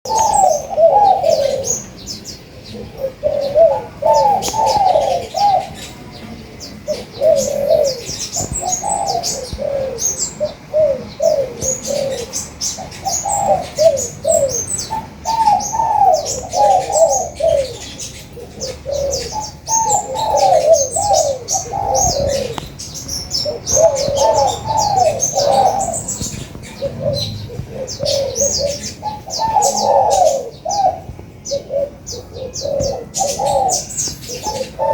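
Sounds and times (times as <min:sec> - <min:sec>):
doves cooing: 0:00.1 - 0:34.9.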